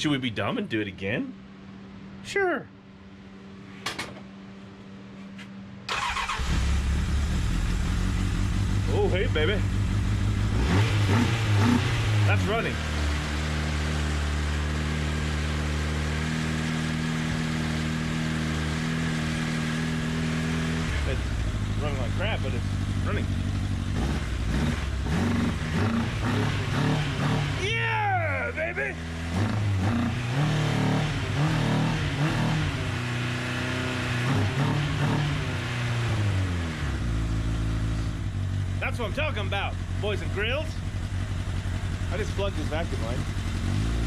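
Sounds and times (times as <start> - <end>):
motorcycle engine running rough: 6.8 - 27.6, 36.4 - 44.0.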